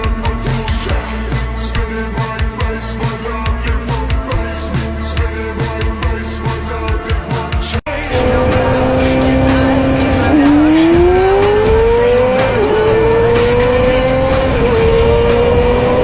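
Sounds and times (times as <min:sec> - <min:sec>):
motorcycle engine accelerating: 0:08.1 - 0:16.0.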